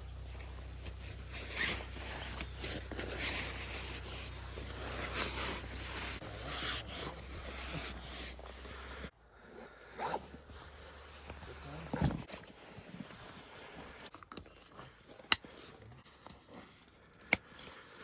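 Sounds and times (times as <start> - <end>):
rustling and rubbing: 0.0 - 9.1, 10.0 - 16.8
steady low hum: 0.0 - 12.3.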